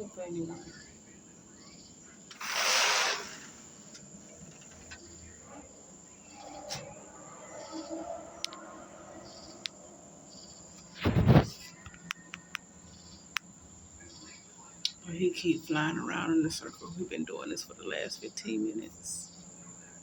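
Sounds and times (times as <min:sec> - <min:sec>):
faint insects chirping: 0:00.0 - 0:20.0
short loud rush of noise: 0:10.9 - 0:11.7.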